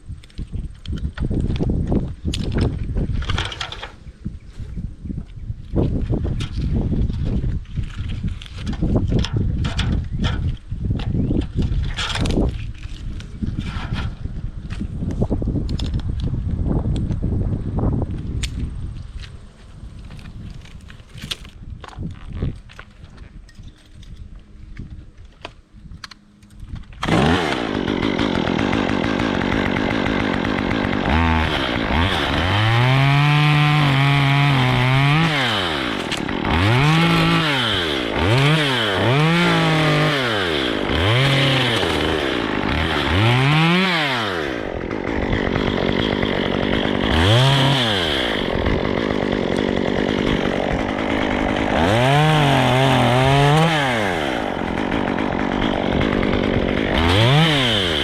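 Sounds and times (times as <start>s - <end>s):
chainsaw revving: 27.0s - 58.0s.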